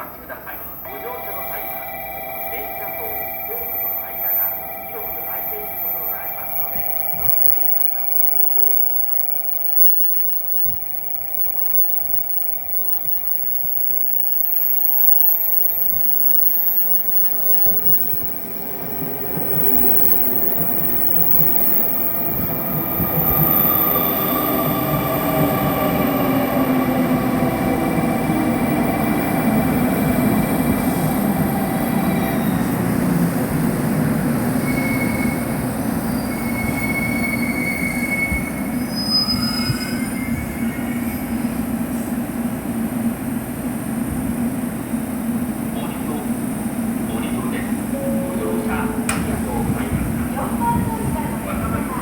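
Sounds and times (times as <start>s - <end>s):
passenger train rumbling on rails: 0.0s - 52.0s
high-pitched wheel squeals: 0.7s - 32.8s, 34.4s - 41.7s.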